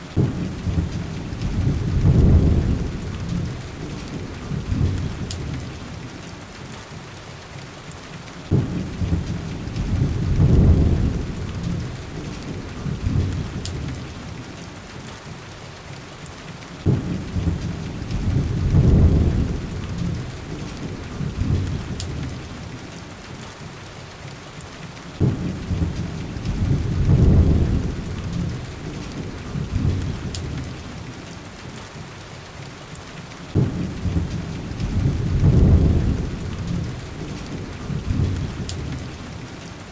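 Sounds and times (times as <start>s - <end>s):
heavy rain hissing: 0.0s - 39.9s
low rolls of thunder: 0.1s - 6.1s, 8.5s - 14.4s, 16.8s - 22.8s, 25.2s - 31.1s, 33.5s - 39.5s.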